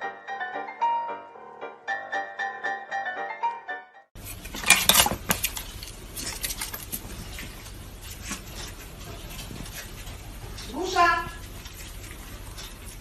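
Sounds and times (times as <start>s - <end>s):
low steady hum: 4.2s - 13.0s
dishes clinking and clattering: 4.4s - 6.9s.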